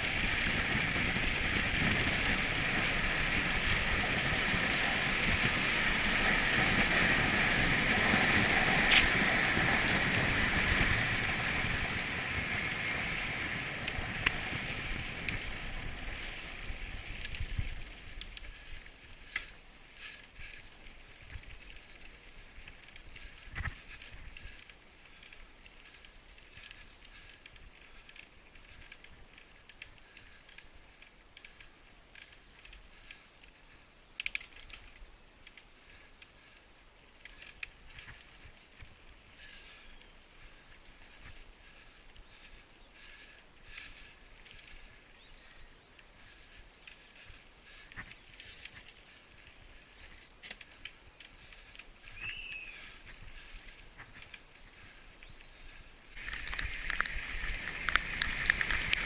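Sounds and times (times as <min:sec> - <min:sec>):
light clicks and ticks: 0:15.2 - 0:15.6, 0:17.2 - 0:18.6, 0:34.2 - 0:36.4, 0:46.8 - 0:52.2, 0:56.2 - 0:59.0.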